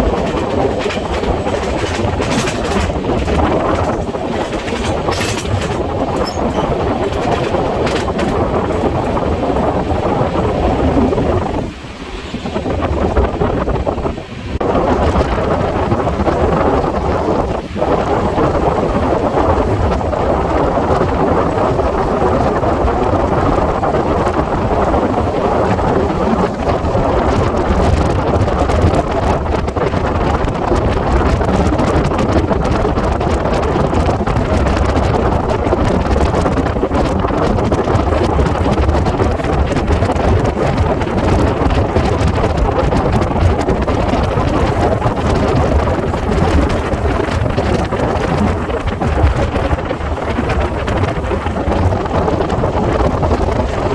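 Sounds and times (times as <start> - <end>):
train rumbling at speed: 0.0 - 53.9
wind buffeting microphone: 0.0 - 53.9.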